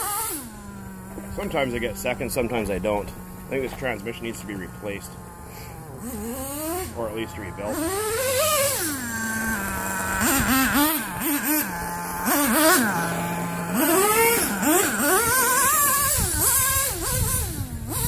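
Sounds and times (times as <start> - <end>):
nitro engine idling and revving: 0.0 - 18.0.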